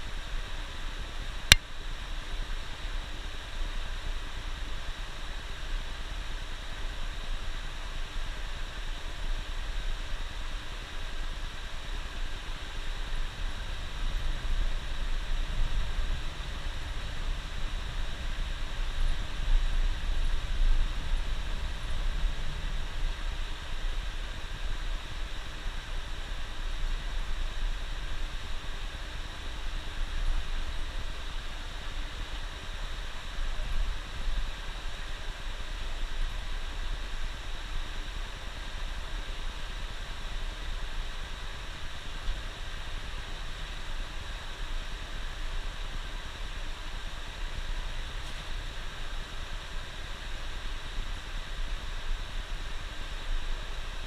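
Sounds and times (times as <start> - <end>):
even hiss: 0.0 - 54.0.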